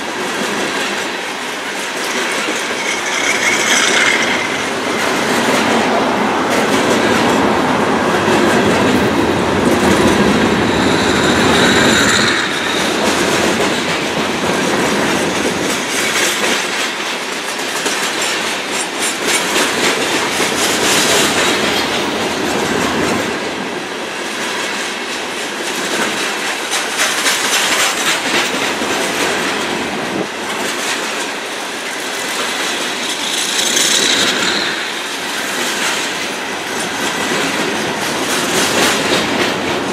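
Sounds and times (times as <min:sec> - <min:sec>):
wheels clicking over rail joints: 0:00.0 - 0:07.5, 0:08.1 - 0:23.4, 0:24.2 - 0:39.9
freight train rumbling past: 0:00.0 - 0:39.9
high wheel squeal: 0:01.9 - 0:06.0, 0:09.3 - 0:14.6, 0:32.7 - 0:36.2.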